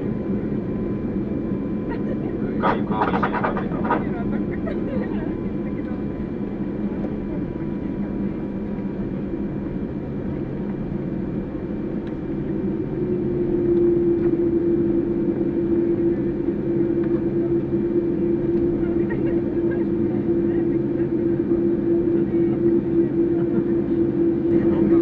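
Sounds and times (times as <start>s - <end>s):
vehicle engine drone: 0.0s - 25.0s.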